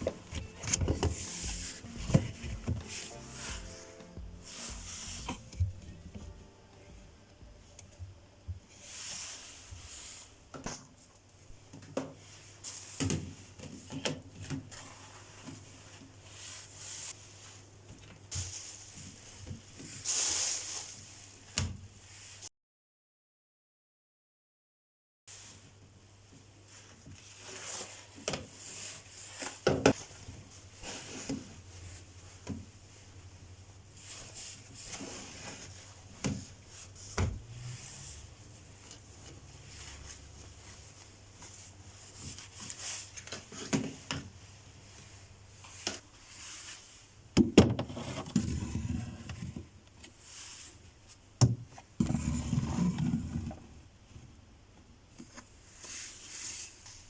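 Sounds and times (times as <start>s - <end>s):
faint low hum: 0.0s - 8.8s.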